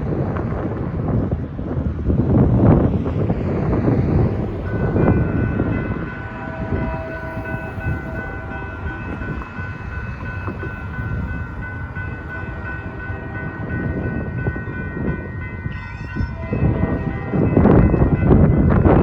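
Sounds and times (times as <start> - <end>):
freight train rumbling: 0.0 - 19.0
steady high tones: 3.2 - 15.8.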